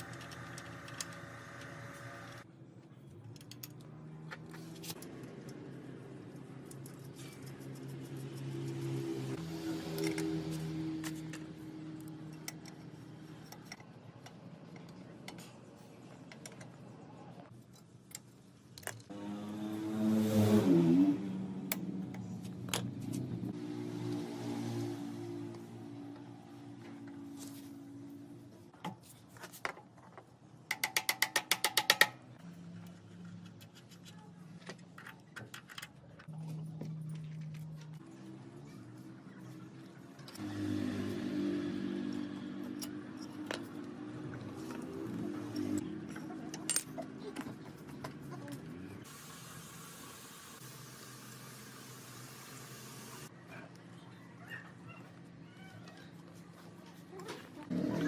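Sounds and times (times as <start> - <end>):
small petrol engine running: 57.7 - 58.0.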